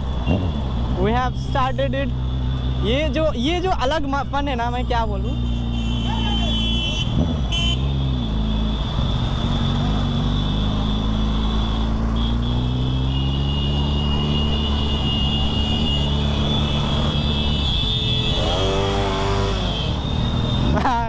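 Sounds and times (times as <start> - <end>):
road and wind noise: 0.0 - 21.0
motorcycle engine running: 6.0 - 19.8.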